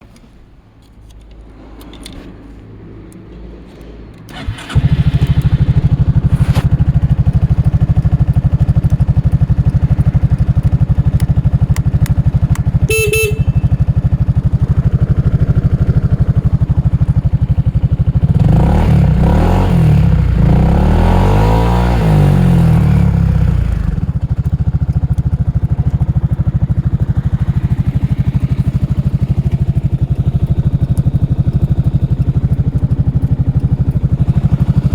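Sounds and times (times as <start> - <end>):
scooter engine starting and idling: 4.2 - 34.9
scooter engine revving: 4.3 - 34.9
horn toot: 12.8 - 14.0.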